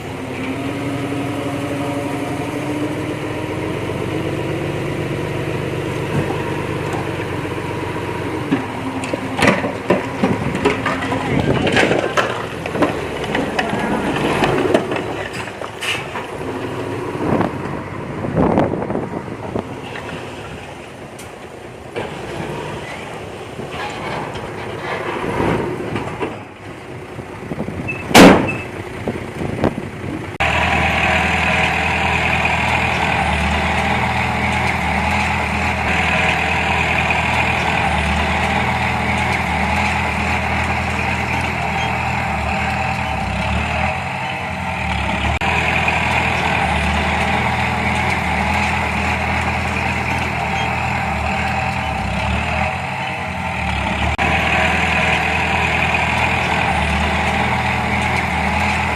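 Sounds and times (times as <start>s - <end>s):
diesel engine of heavy machinery: 0.0s - 58.9s
loud bang: 28.1s - 28.7s.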